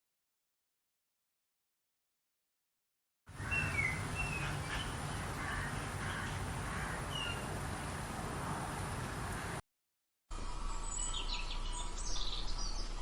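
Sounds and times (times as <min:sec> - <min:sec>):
harsh caw-like bird calls: 0:03.3 - 0:08.2, 0:09.0 - 0:09.6
background hiss: 0:03.3 - 0:09.6
birds chirping: 0:03.3 - 0:09.6.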